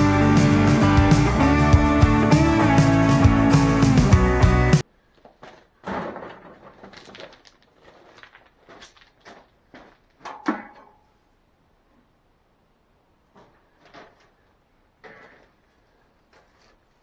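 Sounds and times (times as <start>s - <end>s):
music: 0.0s - 4.8s.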